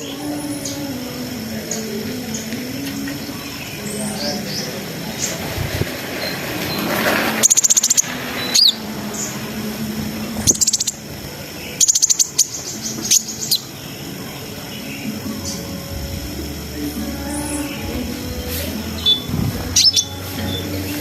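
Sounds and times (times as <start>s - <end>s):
sunbird singing high trills: 6.2s - 16.0s, 16.6s - 21.0s.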